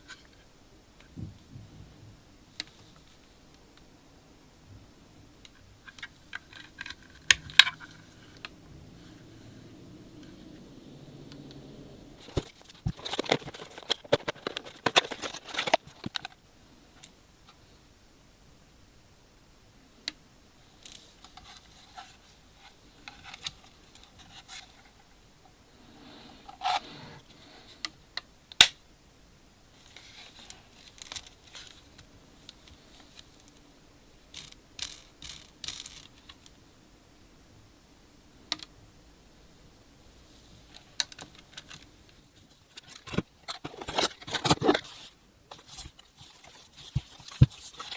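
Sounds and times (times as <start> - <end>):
packaging crinkling: 12.2 - 16.3, 42.8 - 47.9.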